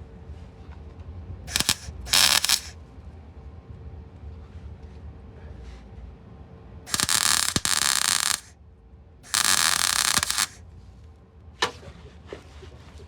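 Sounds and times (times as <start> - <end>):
arc welding on steel: 1.5 - 2.7, 6.9 - 8.5, 9.3 - 10.6.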